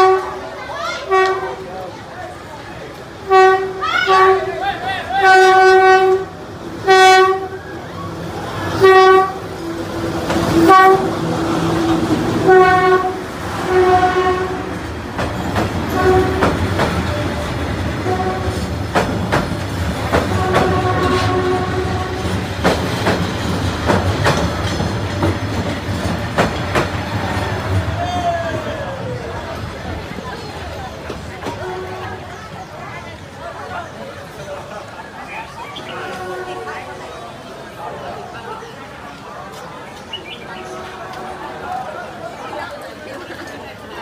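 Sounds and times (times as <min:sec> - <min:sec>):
locomotive horn blasts: 0:00.0 - 0:00.4, 0:01.0 - 0:01.6, 0:03.2 - 0:04.6, 0:05.2 - 0:07.6, 0:08.7 - 0:09.5, 0:10.5 - 0:11.2, 0:12.4 - 0:14.8, 0:15.9 - 0:16.6, 0:18.0 - 0:18.7, 0:20.3 - 0:22.3, 0:31.6 - 0:32.2, 0:35.9 - 0:36.9
train coaches rumbling past: 0:00.0 - 0:44.0
wheels clacking over rail joints: 0:07.0 - 0:36.6.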